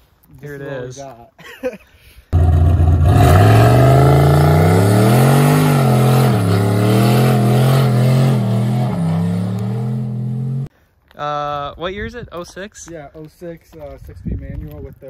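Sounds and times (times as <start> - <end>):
car engine revving: 2.4 - 10.7.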